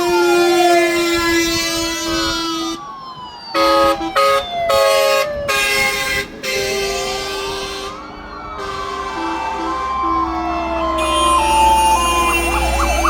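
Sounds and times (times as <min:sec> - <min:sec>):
loud horn blasts: 0:00.0 - 0:02.7, 0:10.9 - 0:13.0
fire engine sirens wailing: 0:00.0 - 0:13.0.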